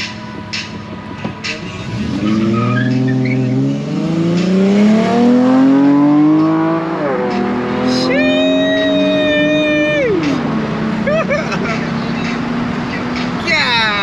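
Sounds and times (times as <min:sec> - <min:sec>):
motorcycle engine revving: 0:01.8 - 0:14.0.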